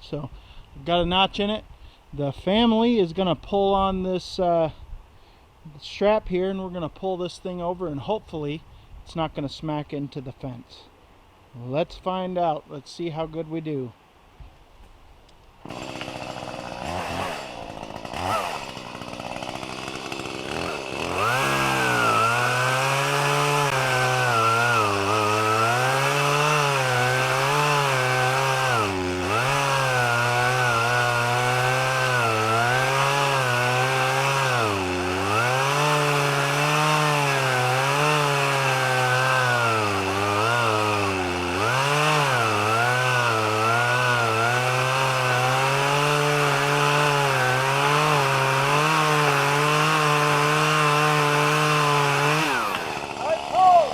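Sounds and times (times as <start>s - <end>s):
chainsaw cutting tree trunk: 15.6s - 53.9s.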